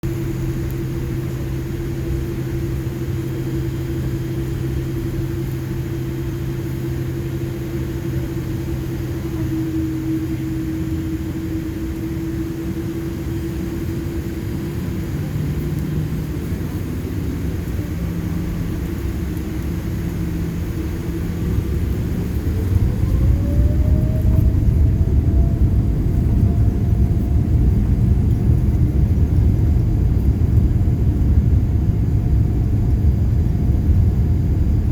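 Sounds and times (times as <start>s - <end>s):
jet engines humming in cabin: 0.0s - 34.9s
jet engines spooling up: 15.6s - 29.7s.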